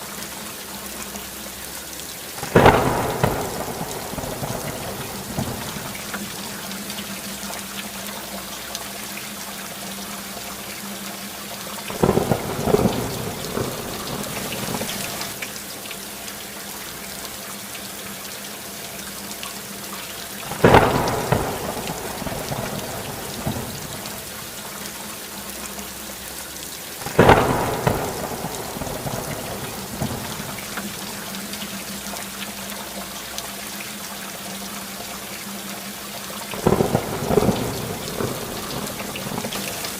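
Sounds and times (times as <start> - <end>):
steady rain: 0.0 - 39.9
thunder claps rumbling: 2.4 - 6.7, 11.9 - 15.4, 20.5 - 24.4, 27.0 - 31.2, 36.6 - 39.9.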